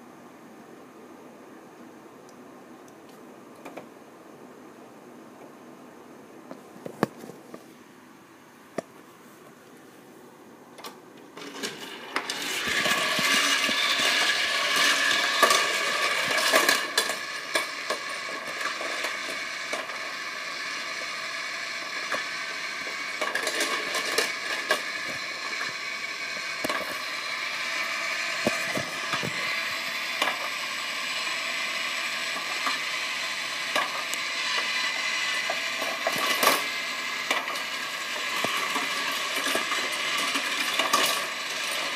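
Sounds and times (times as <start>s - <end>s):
steady whir: 10.8s - 41.9s
toy cars clattering on plastic track: 11.4s - 41.9s.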